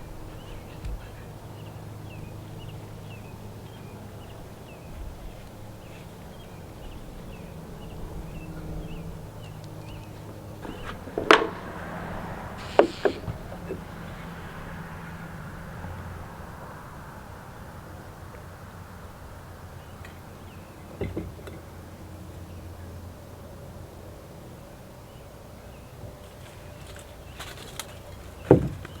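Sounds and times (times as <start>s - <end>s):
bird chirping: 0.0s - 17.2s
loud sharp knocks: 10.6s - 14.5s.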